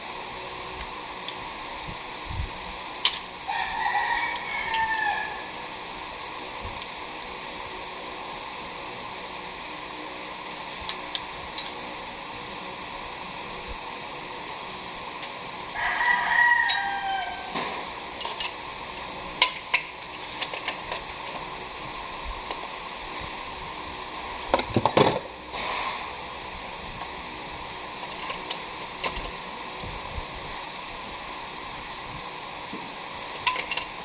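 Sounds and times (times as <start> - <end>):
steady background hum: 0.0 - 34.0
rooster crowing: 3.5 - 5.6, 15.7 - 17.7.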